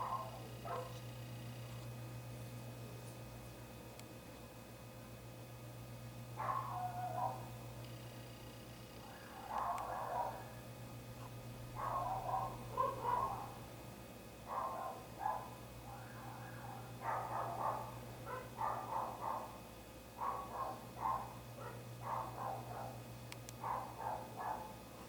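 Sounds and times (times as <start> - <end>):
dog barking: 0.0 - 1.0, 6.4 - 7.5, 9.0 - 10.6, 11.8 - 13.6, 14.4 - 19.6, 20.2 - 23.0, 23.6 - 24.8
steady low hum: 0.0 - 25.0.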